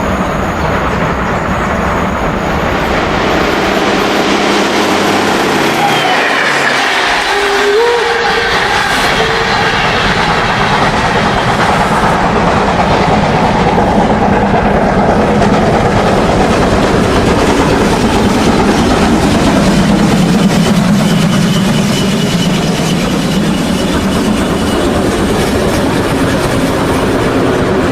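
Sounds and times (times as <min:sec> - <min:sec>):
model locomotive sound: 0:00.0 - 0:27.9.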